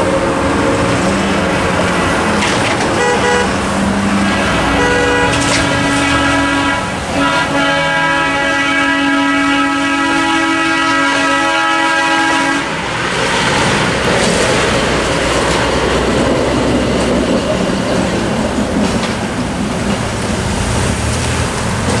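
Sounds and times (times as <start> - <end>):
train rumbling and clattering: 0.0 - 22.0
train horn blast: 2.9 - 12.8.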